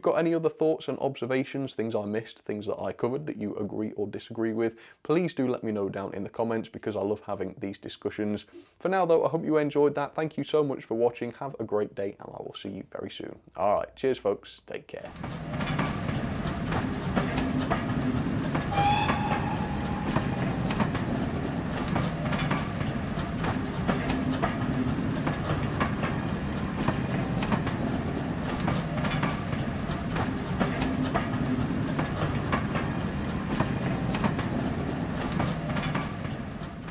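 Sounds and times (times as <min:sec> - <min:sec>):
wheels clicking over rail joints: 0:15.1 - 0:36.9
brief high tone: 0:18.7 - 0:20.7.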